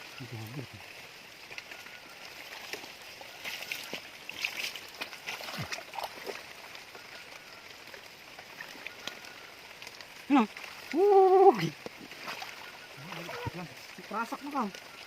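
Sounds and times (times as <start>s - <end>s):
rain: 0.0s - 15.0s
running water: 0.0s - 15.0s
water splashing in stream: 0.0s - 15.0s.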